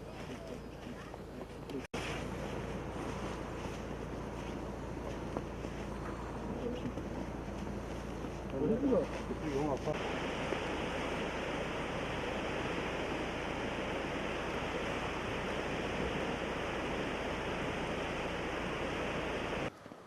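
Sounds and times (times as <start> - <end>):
rushing water of a river: 8.6 - 19.8.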